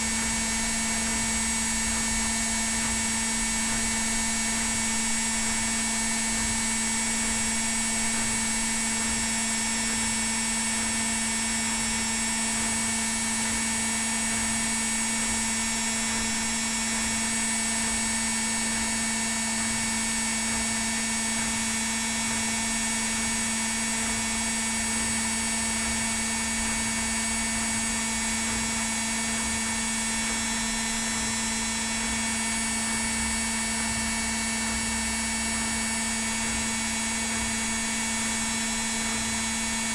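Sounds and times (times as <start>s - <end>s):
washing machine spinning: 0.0s - 11.2s.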